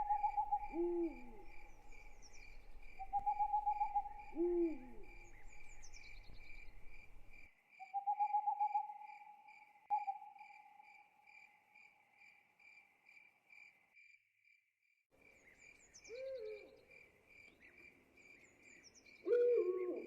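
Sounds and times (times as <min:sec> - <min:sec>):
owl hoots: 0:00.0 - 0:06.4, 0:16.1 - 0:16.8, 0:19.2 - 0:20.0
crickets chirping: 0:00.0 - 0:14.1.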